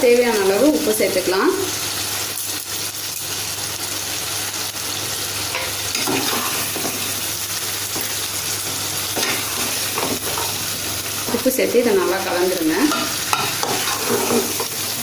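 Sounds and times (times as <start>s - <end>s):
food sizzling in oil: 0.0s - 15.0s
spatula stirring and scraping: 5.6s - 11.6s, 12.8s - 15.0s.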